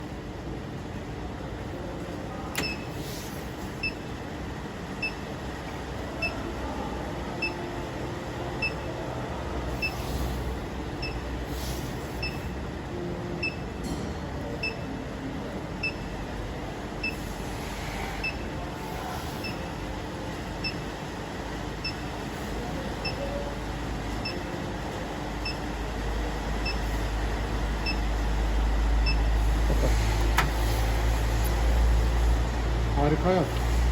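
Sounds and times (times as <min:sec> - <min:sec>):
induction heating machine running: 0:14.4 - 0:33.9.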